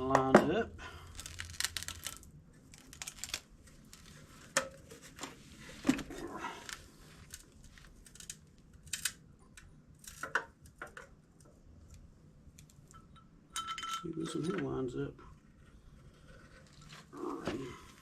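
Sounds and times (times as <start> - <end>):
metal bolts clicking and clinking: 12.9 - 14.5.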